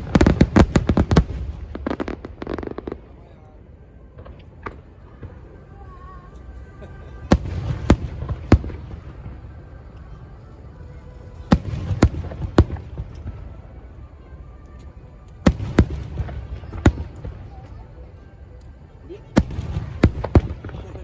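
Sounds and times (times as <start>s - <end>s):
fireworks bursting in bangs: 0.0s - 3.1s, 7.2s - 10.0s, 11.3s - 13.6s, 15.4s - 17.6s, 19.3s - 21.0s.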